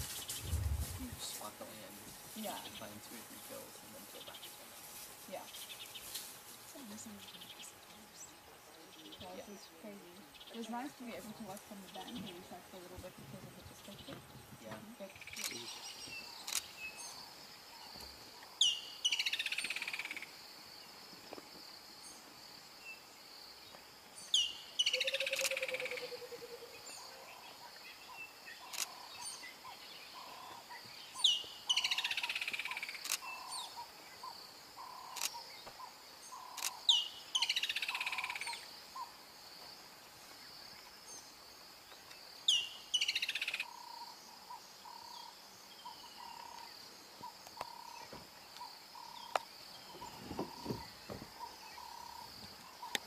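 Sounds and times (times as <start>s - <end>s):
high insect drone: 13.8s - 53.0s
bird calling: 24.4s - 39.2s, 42.5s - 53.0s.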